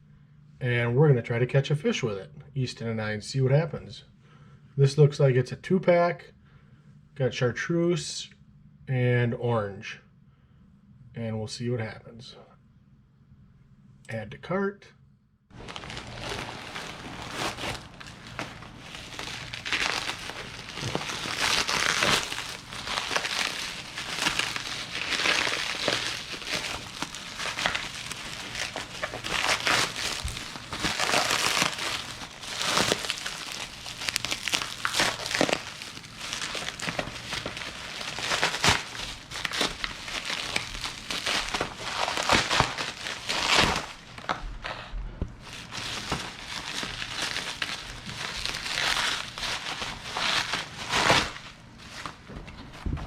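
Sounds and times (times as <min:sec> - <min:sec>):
plastic packaging crinkling: 0:15.6 - 0:44.4, 0:45.4 - 0:52.2.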